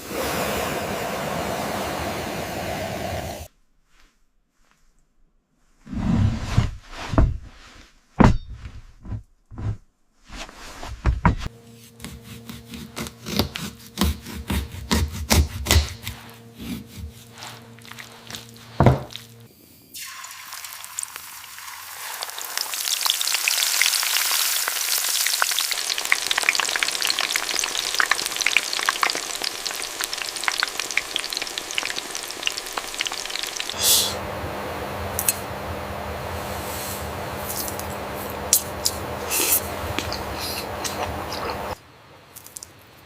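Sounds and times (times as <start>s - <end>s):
faint hum: 11.3s - 20.0s, 26.0s - 43.0s
fish sizzling in a pan: 19.9s - 34.1s.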